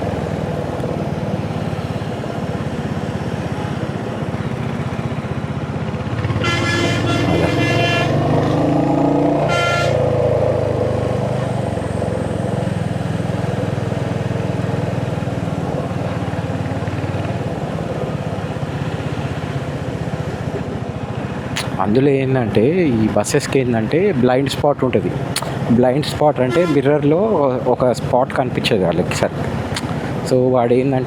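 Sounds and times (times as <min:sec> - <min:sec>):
motorcycle engine running: 0:00.0 - 0:21.6
road and wind noise: 0:00.0 - 0:31.0
vehicle horn honking: 0:06.3 - 0:08.4, 0:09.4 - 0:10.2, 0:26.4 - 0:27.1.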